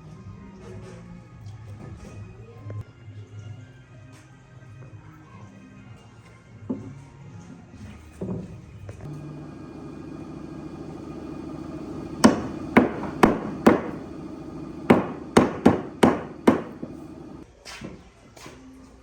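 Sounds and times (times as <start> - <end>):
low hum: 9.1 - 17.4
hammer strikes: 10.6 - 17.4.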